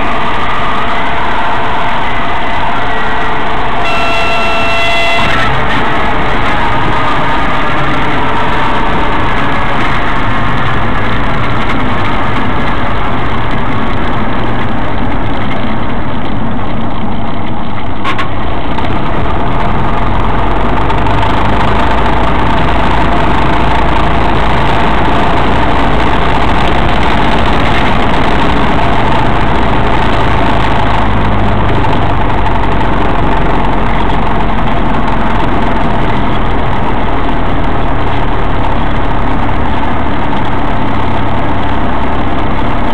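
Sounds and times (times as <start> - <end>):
propeller plane engine droning: 0.0 - 42.9.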